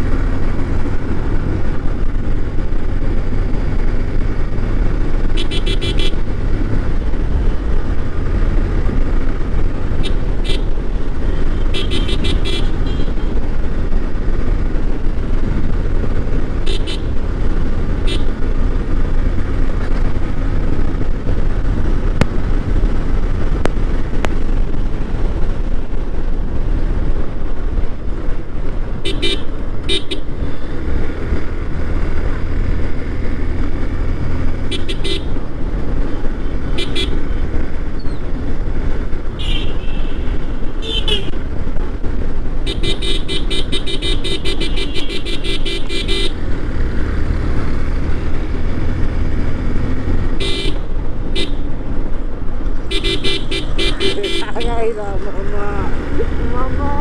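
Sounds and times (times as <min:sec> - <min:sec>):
motorcycle engine running: 0:00.0 - 0:54.7
horns honking: 0:05.3 - 0:06.2, 0:10.0 - 0:13.4, 0:16.6 - 0:17.2, 0:18.0 - 0:18.3, 0:29.0 - 0:30.4, 0:34.7 - 0:35.4, 0:36.5 - 0:37.5, 0:39.4 - 0:41.4, 0:42.6 - 0:46.5, 0:50.3 - 0:51.8, 0:52.8 - 0:57.0.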